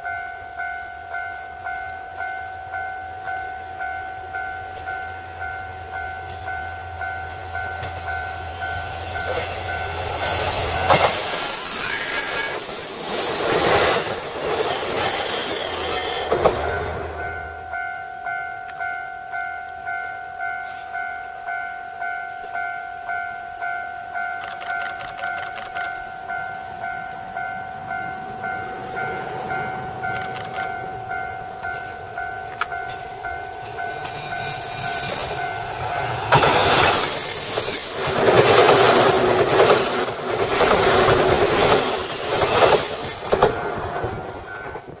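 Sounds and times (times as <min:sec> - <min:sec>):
level-crossing warning bell ringing: 0:00.0 - 0:13.4, 0:14.6 - 0:43.6
train wheels clacking over rail joints: 0:07.6 - 0:17.0, 0:31.6 - 0:45.0.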